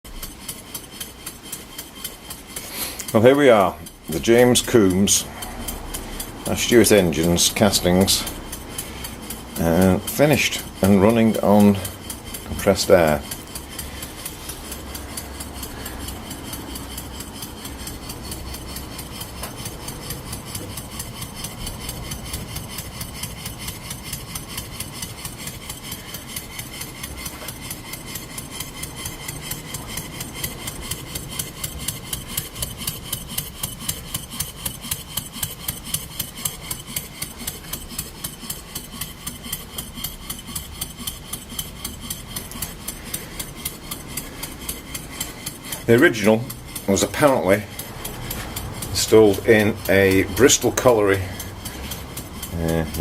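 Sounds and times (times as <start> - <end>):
model engine clicks and exhaust beats: 0.0 - 53.0.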